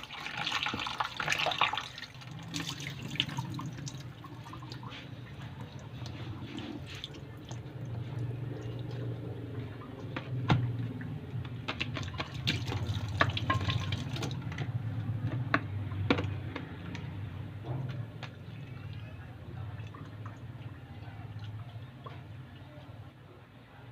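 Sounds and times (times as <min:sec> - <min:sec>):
water running from tap into sink: 0:00.0 - 0:04.9, 0:11.8 - 0:14.5
clinks and knocks of dishes: 0:13.1 - 0:14.7.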